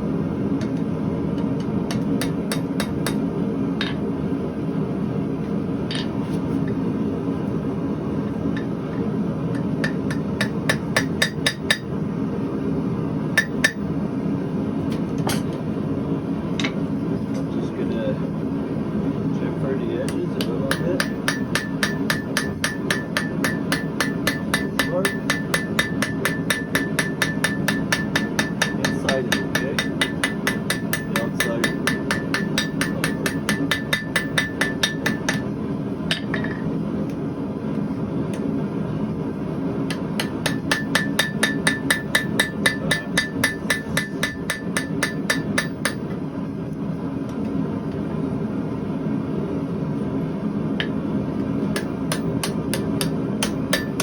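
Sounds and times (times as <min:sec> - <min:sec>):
steady low hum: 0:00.0 - 0:54.0
hammer striking steel on anvil: 0:01.4 - 0:03.2, 0:03.8 - 0:04.0, 0:09.5 - 0:11.9, 0:13.4 - 0:13.9, 0:20.1 - 0:35.5, 0:36.1 - 0:36.7, 0:39.9 - 0:46.2, 0:51.7 - 0:54.0.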